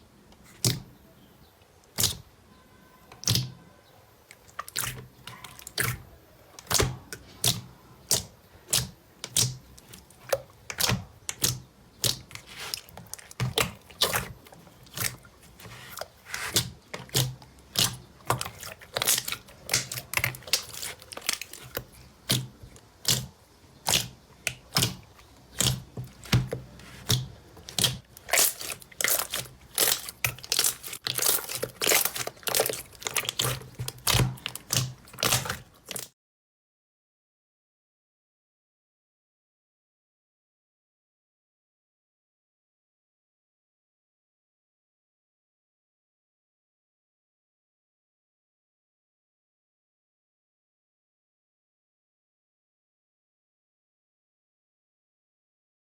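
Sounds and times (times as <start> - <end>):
slime popping and crackling: 6.6 - 36.1.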